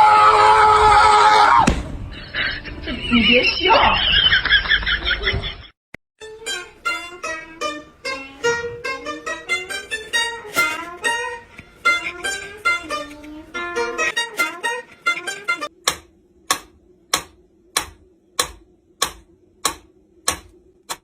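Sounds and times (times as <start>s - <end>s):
plucked string melody: 6.2s - 15.7s.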